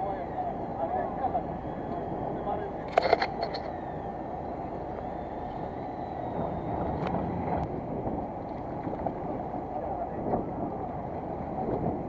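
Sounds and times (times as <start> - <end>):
boat engine rumble: 0.0 - 12.0
sharp clicks: 2.9 - 3.7.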